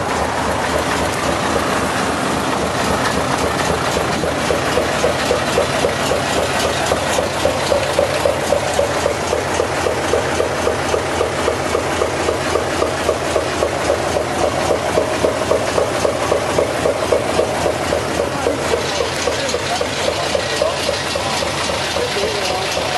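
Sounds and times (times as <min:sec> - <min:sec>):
diesel truck engine idling: 0:00.0 - 0:22.9.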